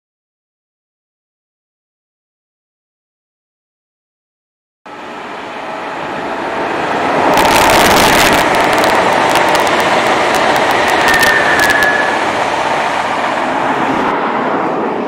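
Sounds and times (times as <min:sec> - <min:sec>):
train rushing past: 0:04.9 - 0:15.0
sharp clicks: 0:07.3 - 0:12.0
brief high squeal: 0:11.0 - 0:12.3.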